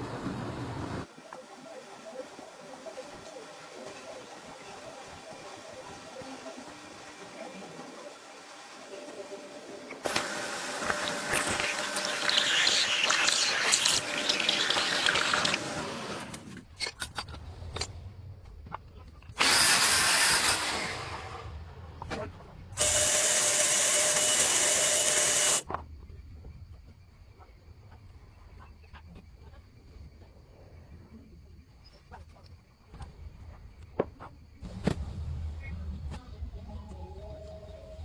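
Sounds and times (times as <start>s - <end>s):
power tool whine: 10.0s - 16.2s, 19.4s - 21.4s, 22.8s - 25.6s.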